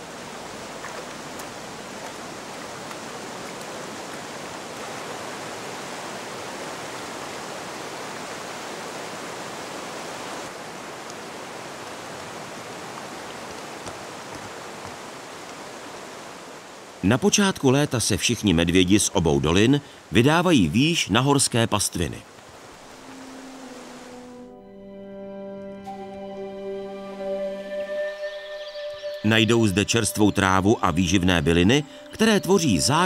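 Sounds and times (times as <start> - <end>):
river rushing over stones: 0.0 - 17.8, 22.0 - 24.3.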